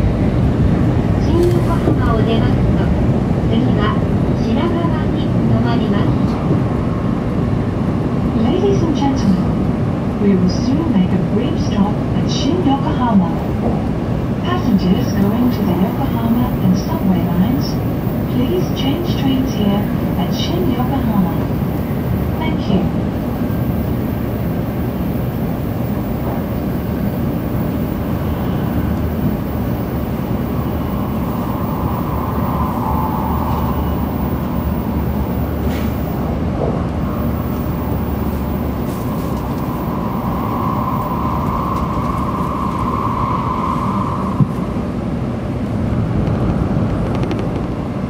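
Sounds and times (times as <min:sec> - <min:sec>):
wheels rumbling on rail: 0:00.0 - 0:48.0
high hum: 0:25.9 - 0:45.4
air rushing past: 0:28.0 - 0:46.8.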